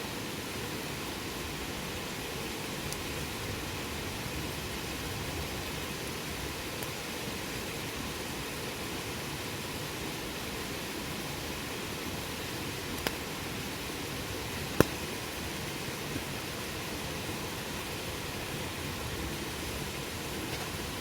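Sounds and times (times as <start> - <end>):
campfire hissing and crackling: 0.0 - 21.0.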